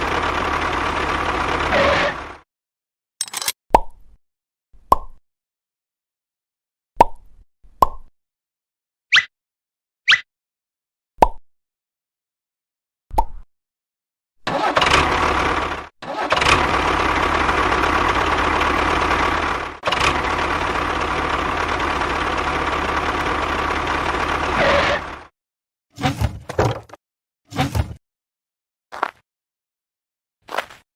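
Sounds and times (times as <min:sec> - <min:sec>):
tractor engine running: 0:00.0 - 0:02.4, 0:14.4 - 0:25.3.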